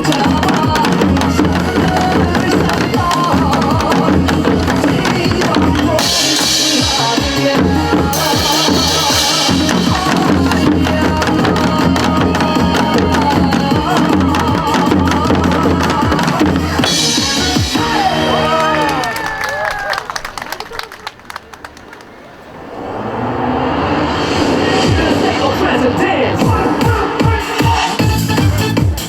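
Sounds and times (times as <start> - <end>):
hourglass drums ensemble: 0.0 - 19.1
song music: 0.0 - 19.4, 21.8 - 29.0
bright hissing wash: 5.2 - 11.8, 22.1 - 28.0.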